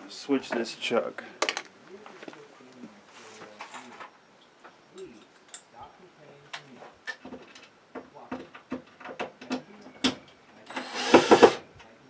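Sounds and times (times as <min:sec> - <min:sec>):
drill chuck clicks and rattles: 0:10.7 - 0:11.6
harsh burst of noise: 0:10.7 - 0:11.6.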